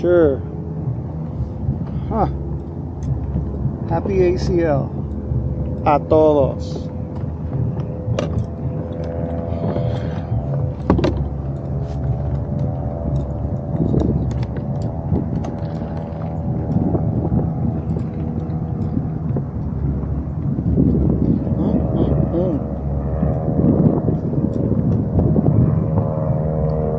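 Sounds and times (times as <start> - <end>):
engine drone: 0.0 - 26.9
sharp clicks and knocks: 7.1 - 20.5.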